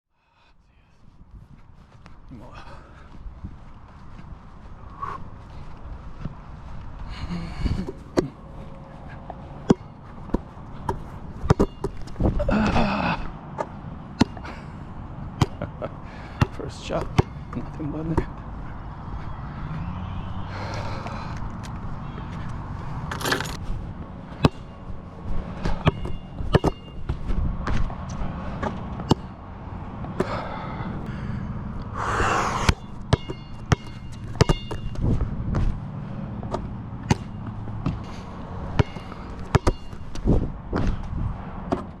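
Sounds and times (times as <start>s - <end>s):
steady low rumble: 0.3s - 33.2s
basketball bouncing: 9.6s - 12.1s, 16.4s - 17.4s, 25.8s - 27.9s, 32.7s - 35.7s, 36.4s - 38.0s, 38.7s - 41.0s
short metallic ring: 32.8s - 35.0s.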